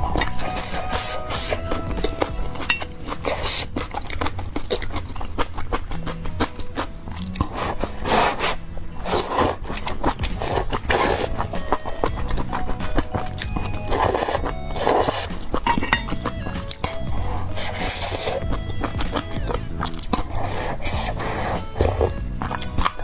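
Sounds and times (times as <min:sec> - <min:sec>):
chewing: 0:00.0 - 0:23.0
faint background music: 0:00.0 - 0:23.0
person slurping noodles: 0:03.0 - 0:12.7, 0:16.7 - 0:18.4, 0:19.8 - 0:23.0.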